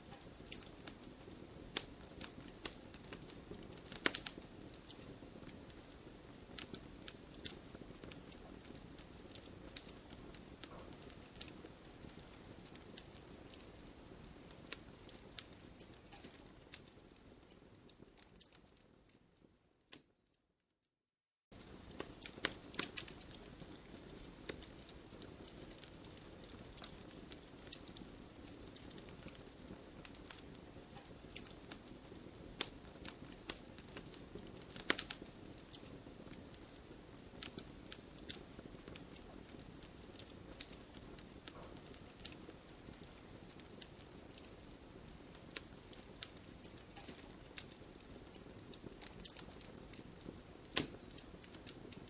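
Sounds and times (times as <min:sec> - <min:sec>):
campfire crackling: 0:00.0 - 0:20.1, 0:21.5 - 0:52.0.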